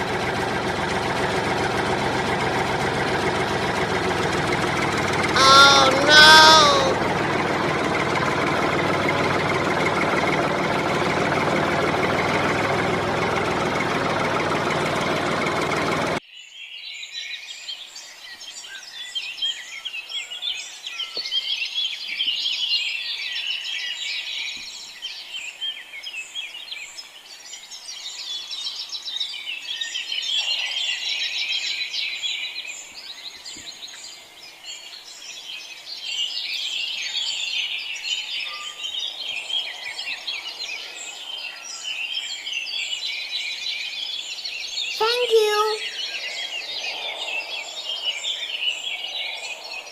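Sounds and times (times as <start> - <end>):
loud mechanical noise: 0.0 - 16.2.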